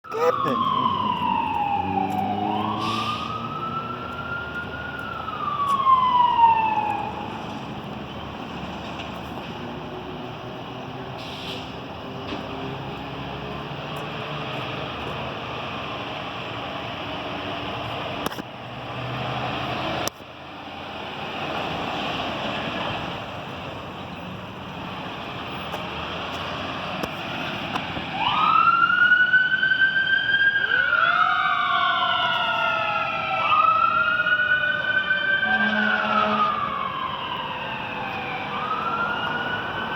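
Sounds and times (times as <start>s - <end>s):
siren wailing: 0.0s - 7.8s, 28.0s - 39.9s
fire engine rumble: 0.0s - 39.9s
second siren tone: 0.1s - 7.3s, 30.7s - 39.9s.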